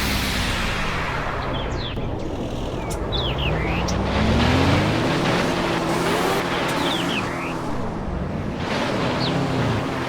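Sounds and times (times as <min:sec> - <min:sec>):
off-road engine revving: 0:02.3 - 0:10.0.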